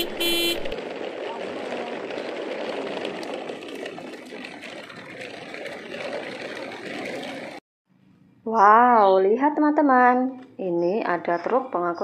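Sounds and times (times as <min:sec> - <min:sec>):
plastic toy trucks rolling on concrete: 0:00.0 - 0:07.6.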